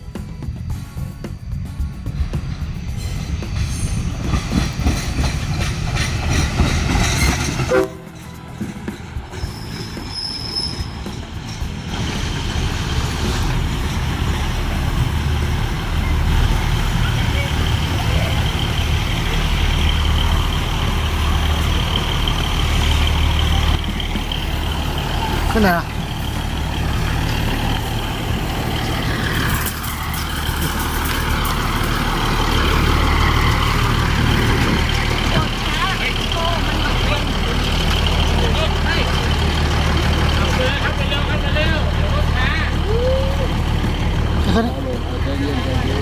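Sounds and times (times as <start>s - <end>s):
train rumbling on rails: 0.0s - 46.0s
high metallic squeal: 7.0s - 11.8s.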